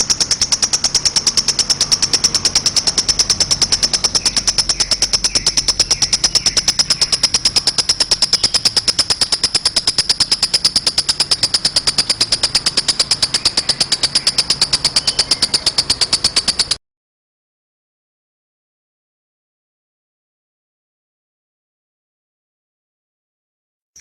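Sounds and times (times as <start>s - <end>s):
lovebird high-pitched chatter: 0.0s - 16.8s.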